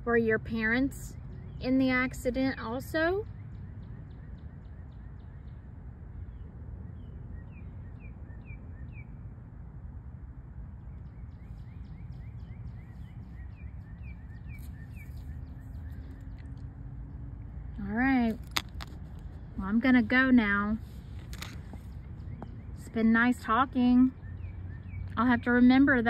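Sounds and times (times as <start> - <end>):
low outdoor rumble: 0.0 - 26.0
bird chirping: 10.8 - 19.7, 20.5 - 25.5.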